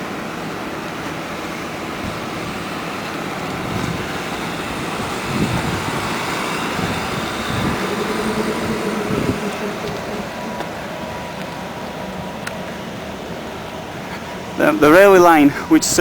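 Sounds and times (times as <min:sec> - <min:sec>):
train rumble: 0:00.0 - 0:16.0
humming tone: 0:02.0 - 0:11.6.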